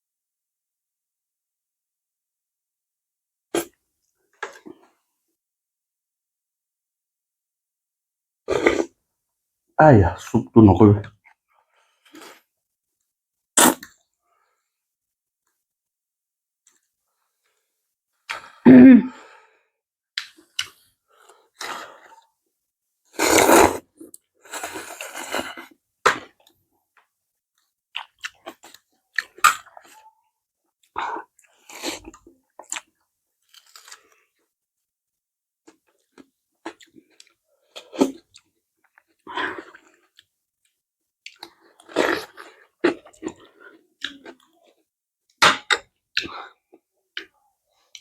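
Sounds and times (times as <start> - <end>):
chewing and crunching food: 20.2 - 22.4, 23.9 - 34.5, 35.6 - 45.0.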